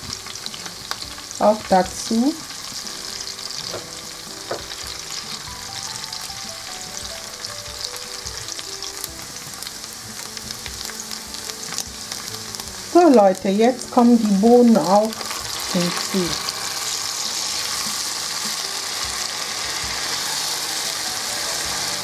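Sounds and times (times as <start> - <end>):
onions sizzling in oil: 0.0 - 22.0.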